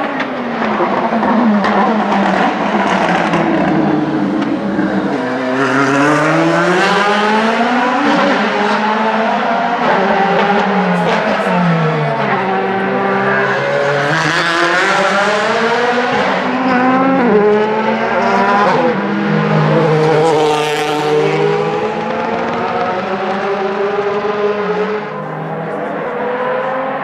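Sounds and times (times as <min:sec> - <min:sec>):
race car engines revving: 0:00.0 - 0:27.0
race car passing: 0:00.0 - 0:27.0.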